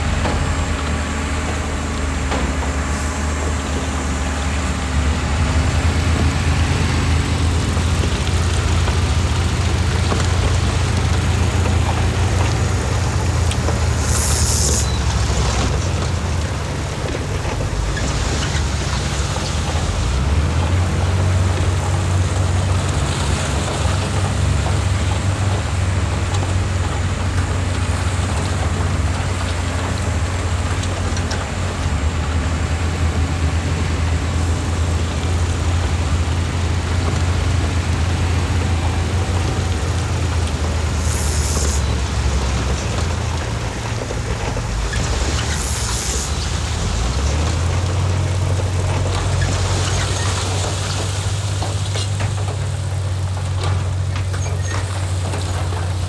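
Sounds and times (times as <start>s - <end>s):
heavy diesel engine under load: 0.0s - 56.0s
short high hisses: 13.9s - 15.6s, 41.0s - 42.0s.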